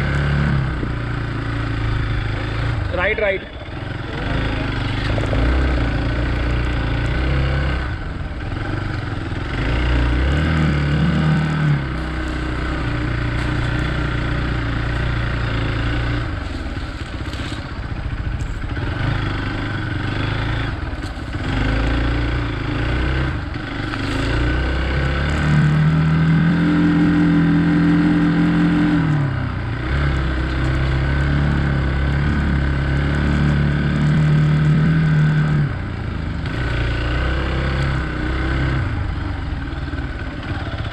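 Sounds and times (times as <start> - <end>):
motorcycle engine revving: 0.0 - 40.9
bike knocks and rattles: 4.8 - 5.8.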